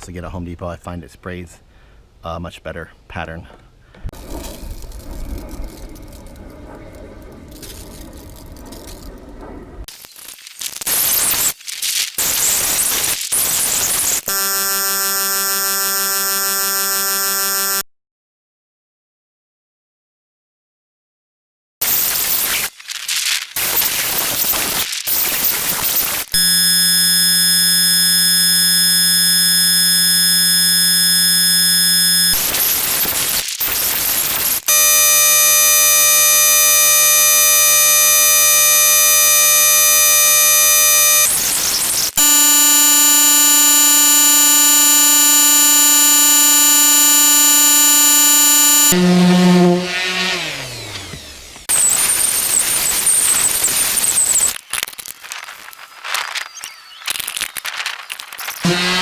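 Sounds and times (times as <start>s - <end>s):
buzzing electronic chords: 14.2s - 17.8s, 26.4s - 51.0s, 58.6s - 59.0s.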